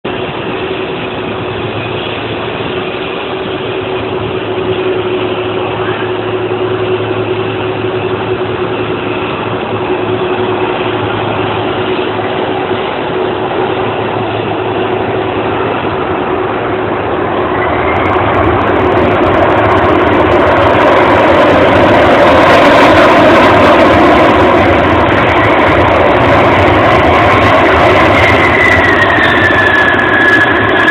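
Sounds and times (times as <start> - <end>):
jet engine whine: 0.0 - 30.9
jet engines roaring: 0.0 - 30.9.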